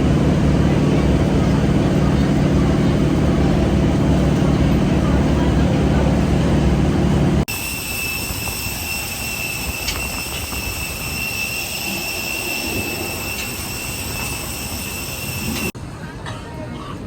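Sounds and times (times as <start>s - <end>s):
jet engines heard from cabin: 0.0s - 16.9s.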